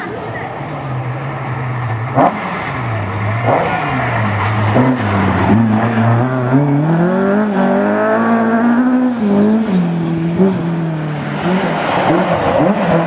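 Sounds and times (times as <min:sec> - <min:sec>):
rally car engine at high revs: 0:00.8 - 0:13.0.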